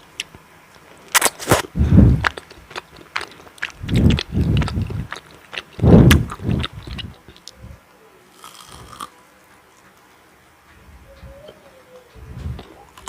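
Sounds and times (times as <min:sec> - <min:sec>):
wet chewing of food: 0:00.0 - 0:07.6, 0:08.4 - 0:10.0, 0:12.4 - 0:13.0.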